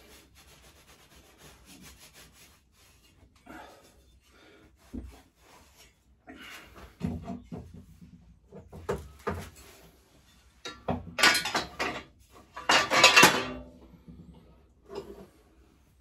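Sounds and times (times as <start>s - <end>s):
metal rattling scrapes: 9.4s - 14.1s
metal tools knocking and clinking: 10.7s - 13.6s.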